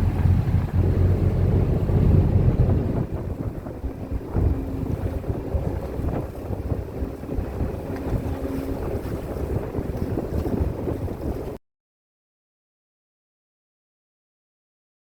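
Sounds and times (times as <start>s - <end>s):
boat engine drone: 0.0s - 11.6s
wind buffeting microphone: 0.0s - 11.6s.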